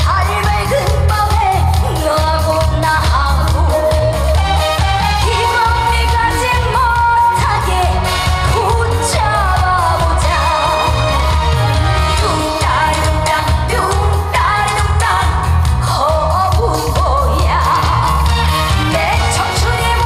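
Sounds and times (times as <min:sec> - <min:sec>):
amplified backing music with bass beat: 0:00.0 - 0:20.0
woman singing: 0:00.0 - 0:20.0.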